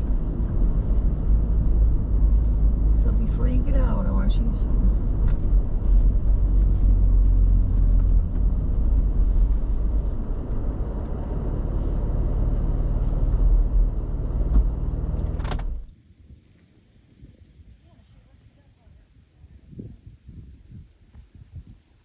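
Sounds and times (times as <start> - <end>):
car engine and road rumble: 0.0 - 16.1.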